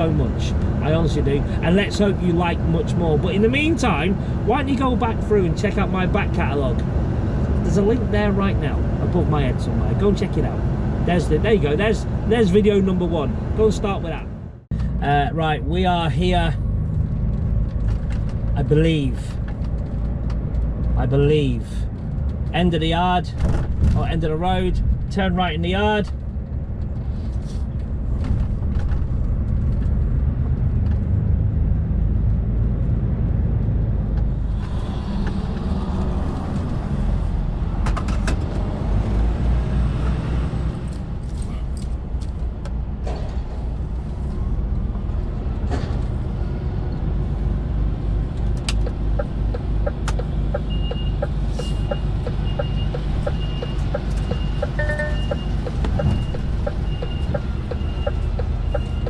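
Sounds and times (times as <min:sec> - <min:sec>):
lorry diesel engine running: 0:43.5 - 0:59.0
high repeating beep: 0:50.6 - 0:59.0.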